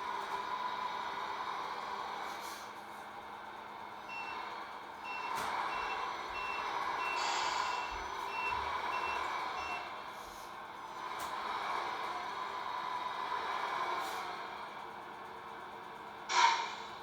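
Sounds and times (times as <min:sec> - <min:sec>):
reversing beeper: 0:05.1 - 0:09.9.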